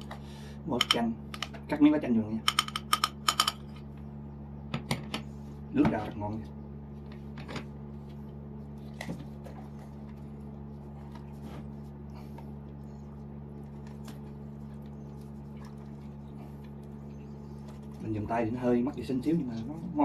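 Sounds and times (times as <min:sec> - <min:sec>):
steady low hum: 0:00.0 - 0:20.0
person chewing food: 0:08.7 - 0:18.0.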